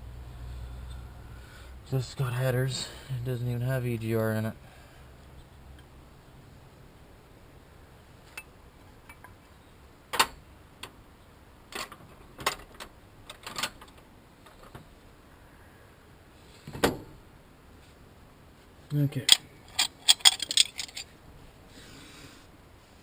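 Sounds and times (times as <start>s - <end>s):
hand tools clicking and clanking: 19.2s - 21.1s.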